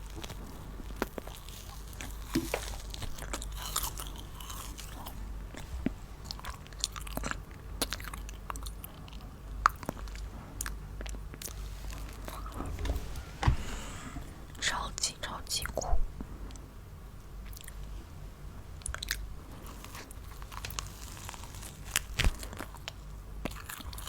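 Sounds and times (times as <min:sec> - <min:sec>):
candy crunching: 0:00.0 - 0:05.6, 0:18.8 - 0:24.0.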